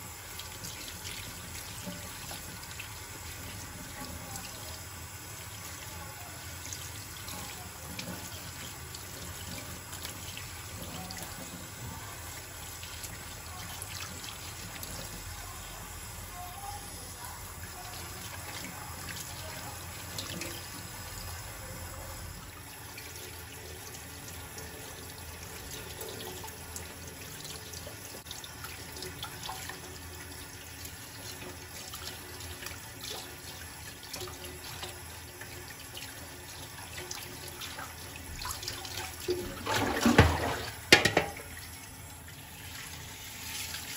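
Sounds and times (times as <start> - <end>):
tap running into sink: 39.2 - 41.7.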